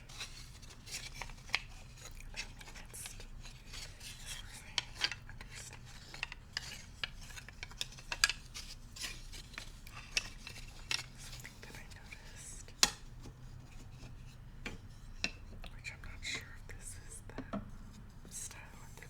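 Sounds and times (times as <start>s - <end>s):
bamboo utensils scratching: 0.0s - 14.4s
light taps and clicks: 17.2s - 18.7s.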